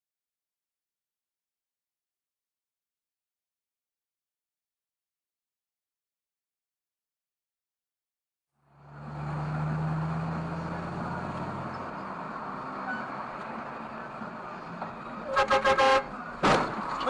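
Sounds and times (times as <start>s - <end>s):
car road and engine noise: 8.6s - 17.0s
car horn short toots: 15.3s - 16.1s.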